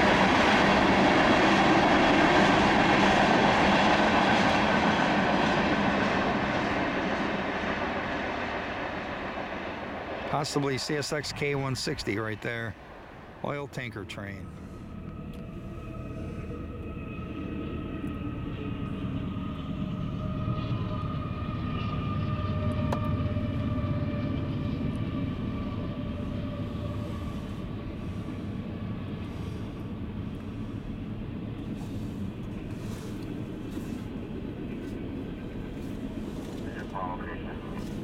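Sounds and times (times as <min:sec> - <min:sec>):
freight train rumbling on rails: 0:00.0 - 0:38.0
high whine: 0:08.9 - 0:38.0.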